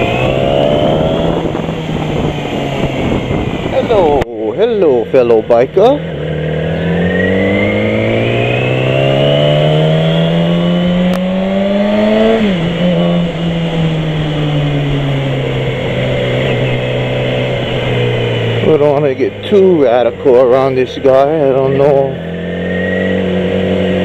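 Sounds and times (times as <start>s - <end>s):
wind rush: 0.0s - 5.5s
motorcycle engine accelerating: 0.0s - 24.0s.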